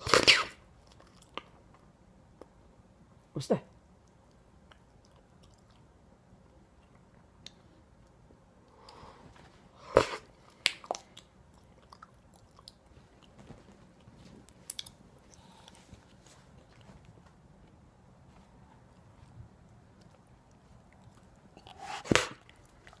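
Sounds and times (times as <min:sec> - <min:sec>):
puppy chewing: 0:10.4 - 0:23.0.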